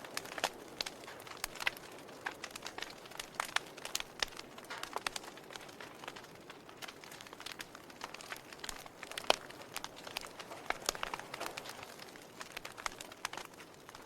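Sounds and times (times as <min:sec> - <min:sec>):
logs crackling in fireplace: 0:00.0 - 0:14.0.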